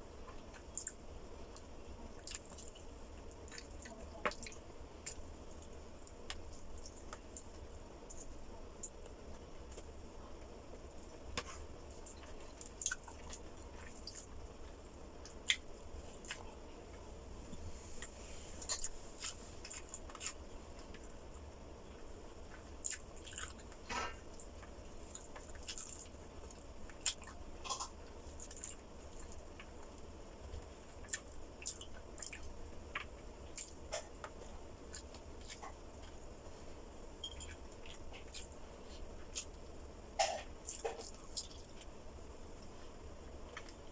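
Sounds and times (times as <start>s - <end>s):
steady low hum: 0.0s - 43.9s
person chewing: 11.4s - 14.4s, 15.2s - 16.6s, 17.9s - 21.1s, 22.5s - 29.9s, 30.5s - 36.5s, 37.2s - 39.6s, 40.2s - 41.9s.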